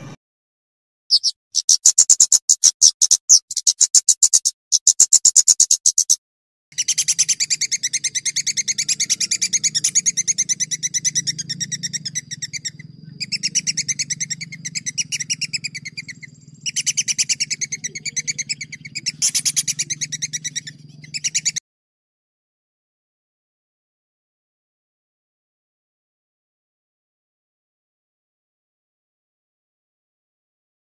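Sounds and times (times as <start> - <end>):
songbird trilling: 1.1 - 6.2, 6.8 - 21.6
low hum: 7.7 - 21.2.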